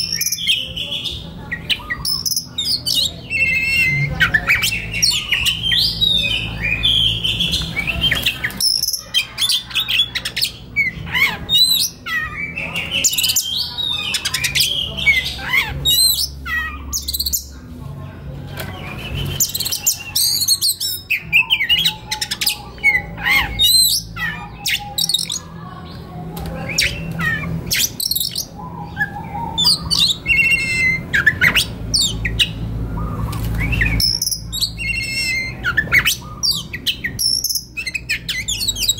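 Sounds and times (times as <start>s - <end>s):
bird singing whistled song: 0.0s - 17.5s, 18.8s - 25.4s, 26.7s - 38.9s
low steady hum: 9.6s - 38.9s.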